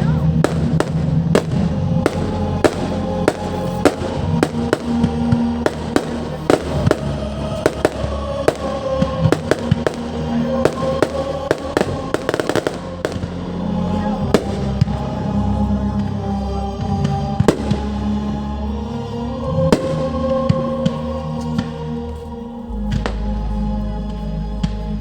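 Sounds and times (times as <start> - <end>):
music with steady notes: 0.0 - 25.0
fireworks bangs: 0.3 - 13.5.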